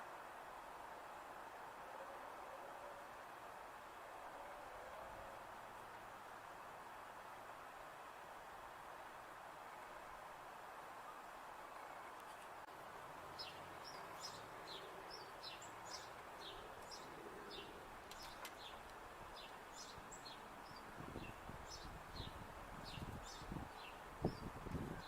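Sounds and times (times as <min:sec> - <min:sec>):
steady background hiss: 0:00.0 - 0:25.0
small birds chirping: 0:13.3 - 0:25.0.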